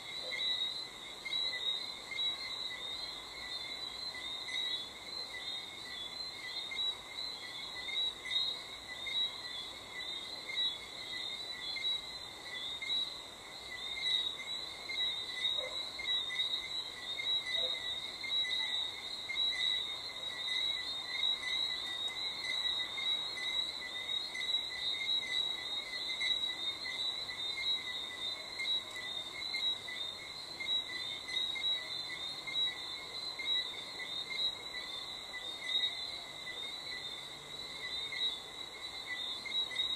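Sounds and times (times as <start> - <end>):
crickets chirping: 0.0 - 39.9
frogs trilling: 0.0 - 39.9.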